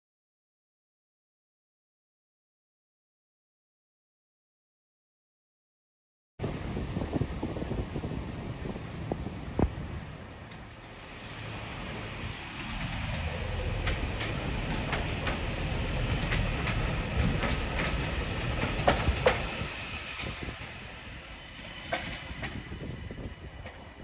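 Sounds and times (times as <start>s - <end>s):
passenger train rumble: 6.4s - 24.0s
wheels clicking over track joints: 10.4s - 24.0s
sharp clacks: 12.6s - 19.6s.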